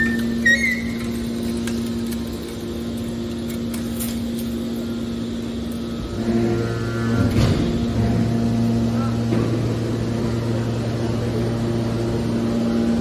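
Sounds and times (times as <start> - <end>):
baler motor and pump humming: 0.0 - 13.0.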